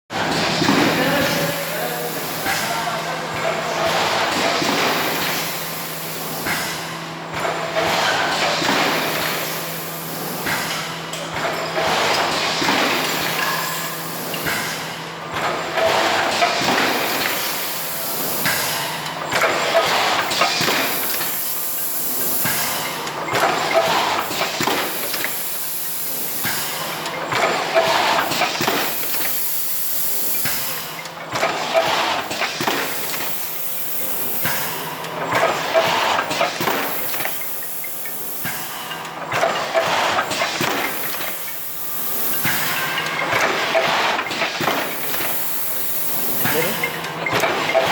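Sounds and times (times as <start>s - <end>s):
machine mechanical clatter: 10.2s - 47.9s.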